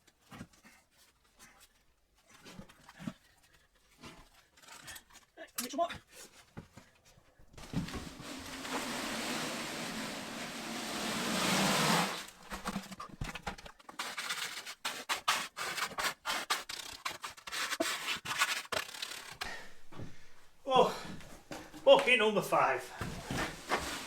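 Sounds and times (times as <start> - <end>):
concrete stirred in a bucket: 7.6 - 19.4, 22.1 - 24.0
quick irregular scrapes: 7.6 - 19.5, 23.2 - 24.0.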